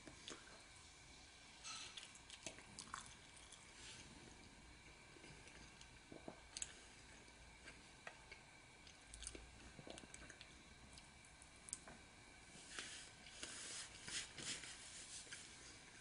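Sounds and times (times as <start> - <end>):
people chewing: 5.2 - 11.1.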